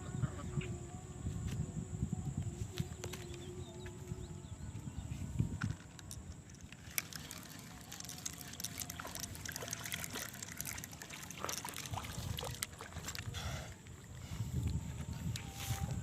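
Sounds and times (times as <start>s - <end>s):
small splashes and clicks: 5.6s - 14.0s
water trickling and dripping: 5.7s - 14.8s.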